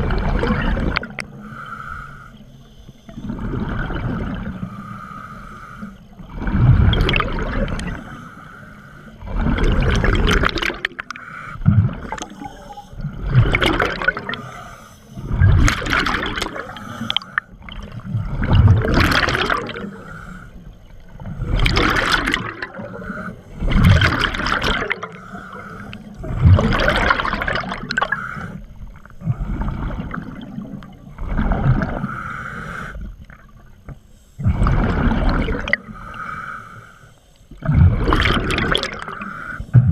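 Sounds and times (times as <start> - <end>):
gurgling exhaled bubbles: 0.0 - 1.3, 3.1 - 4.7, 6.2 - 8.2, 9.2 - 14.6, 15.2 - 20.1, 21.0 - 32.2, 34.4 - 36.0, 37.5 - 39.9
diver breathing through regulator: 1.2 - 3.8, 4.5 - 6.6, 7.7 - 10.1, 11.0 - 13.3, 14.1 - 15.5, 16.5 - 17.6, 19.5 - 21.6, 22.7 - 24.0, 24.9 - 27.0, 27.8 - 30.4, 31.8 - 33.2, 33.9 - 37.7, 38.7 - 39.9.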